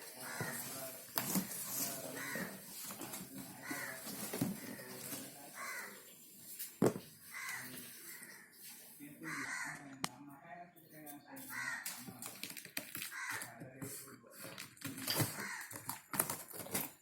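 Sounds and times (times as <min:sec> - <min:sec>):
handling noise: 0:00.0 - 0:05.9
bird cawing: 0:00.2 - 0:00.7, 0:02.1 - 0:02.6, 0:03.6 - 0:04.9, 0:05.6 - 0:06.0, 0:07.2 - 0:08.6, 0:09.2 - 0:10.0, 0:11.5 - 0:12.0, 0:13.1 - 0:13.5, 0:15.4 - 0:15.8.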